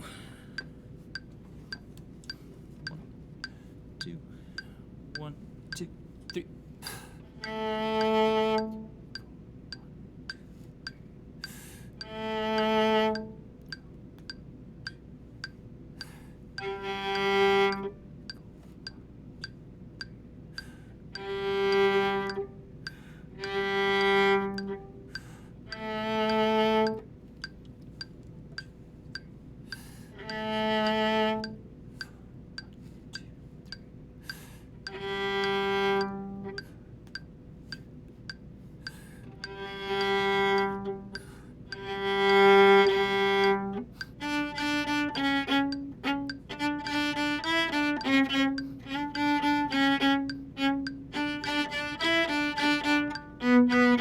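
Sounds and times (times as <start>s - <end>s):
steady metronome click: 0.0s - 54.0s
viola playing long bowed notes: 7.4s - 9.2s, 12.0s - 13.4s, 16.6s - 18.1s, 21.2s - 22.7s, 23.4s - 27.1s, 30.2s - 31.6s, 34.9s - 36.6s, 39.3s - 54.0s.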